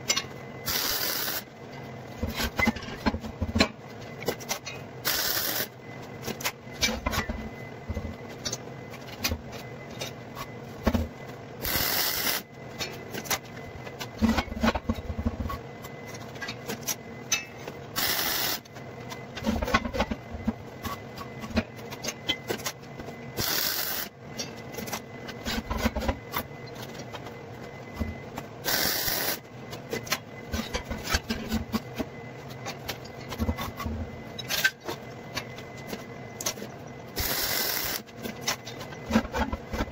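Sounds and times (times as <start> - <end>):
arc welding crackling: 0.6 - 1.5, 5.1 - 5.8, 11.6 - 12.5, 18.0 - 18.7, 23.4 - 24.1, 28.6 - 29.4, 37.2 - 38.1.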